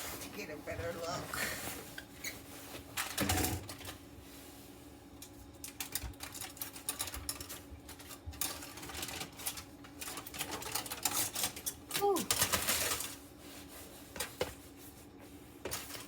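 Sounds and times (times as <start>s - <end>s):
light clicks and crackles: 5.2s - 13.2s.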